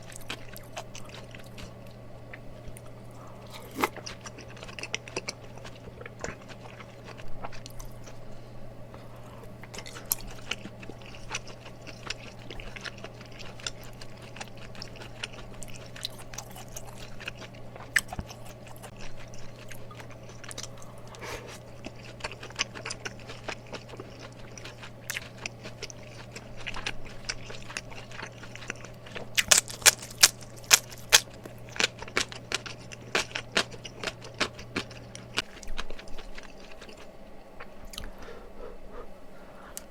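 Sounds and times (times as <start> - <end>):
person chewing: 0.0 - 39.1
steady low hum: 0.0 - 39.9
crisp crunches: 23.7 - 34.2.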